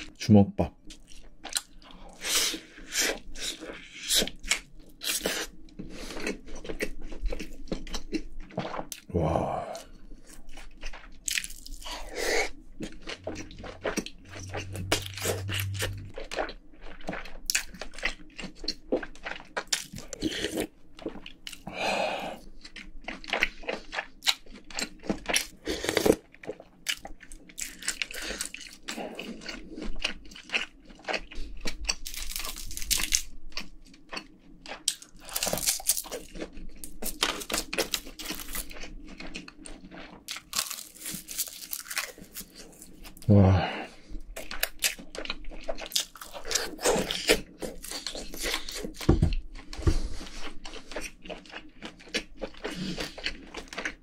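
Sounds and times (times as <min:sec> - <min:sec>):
chewing and crunching food: 0:00.0 - 0:54.0.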